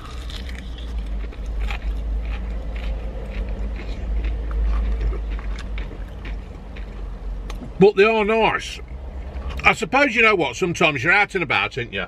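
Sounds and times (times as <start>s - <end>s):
crunchy chewing: 0.0s - 7.8s
steady low rumble: 0.0s - 12.0s.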